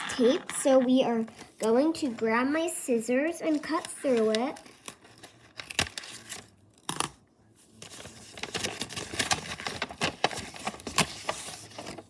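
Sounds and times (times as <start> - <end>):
packaging crinkling and rustling: 3.5 - 7.1, 7.8 - 12.0.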